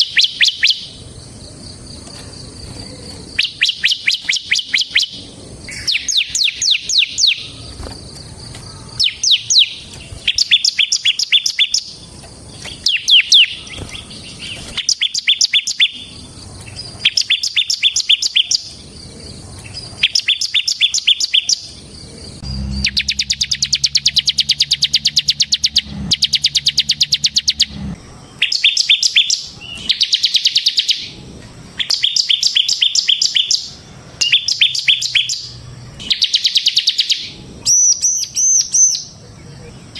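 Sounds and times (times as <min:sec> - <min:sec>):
bird singing rapid high notes: 0:03.2 - 0:07.9, 0:09.0 - 0:16.3, 0:16.9 - 0:19.0, 0:19.9 - 0:31.2, 0:31.8 - 0:39.2
low hum: 0:21.7 - 0:28.4.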